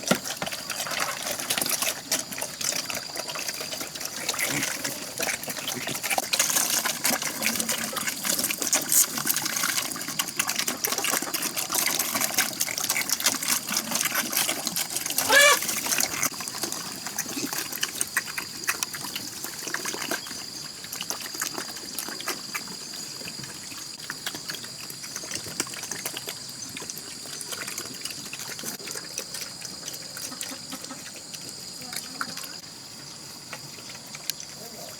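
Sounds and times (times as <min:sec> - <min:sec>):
water splashing and trickling: 0:00.0 - 0:32.7
wavering animal-like call: 0:15.2 - 0:15.7.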